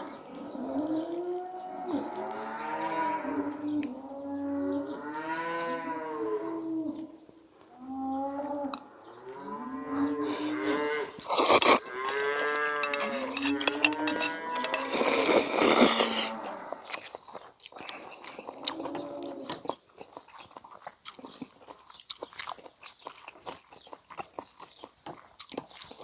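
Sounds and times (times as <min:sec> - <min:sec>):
cattle mooing: 0:00.0 - 0:07.1, 0:07.8 - 0:11.2, 0:11.8 - 0:15.0, 0:16.0 - 0:16.9.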